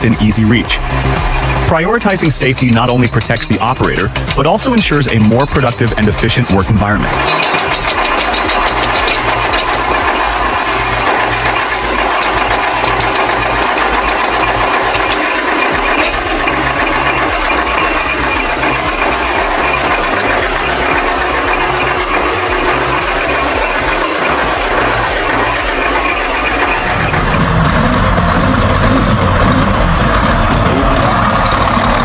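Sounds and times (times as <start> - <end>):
engine-driven machine pulsing: 0.0 - 32.0
fast ticking clatter: 0.0 - 32.0.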